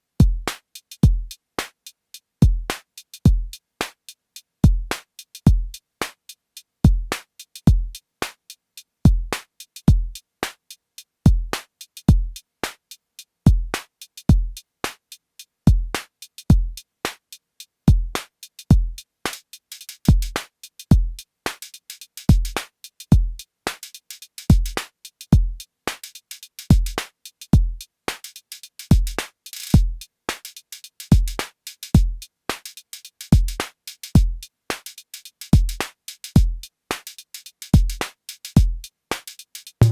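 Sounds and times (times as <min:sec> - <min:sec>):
drum machine beat: 0:02.4 - 0:05.8, 0:06.9 - 0:08.0, 0:09.1 - 0:10.2, 0:11.3 - 0:12.4, 0:13.5 - 0:14.6, 0:15.7 - 0:16.8, 0:17.9 - 0:39.9.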